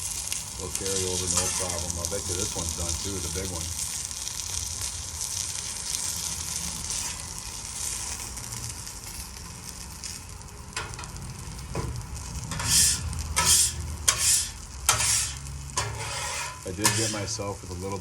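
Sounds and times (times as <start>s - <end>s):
chicken sizzling in hot oil: 0.0s - 18.0s
hot oil spattering: 0.0s - 18.0s.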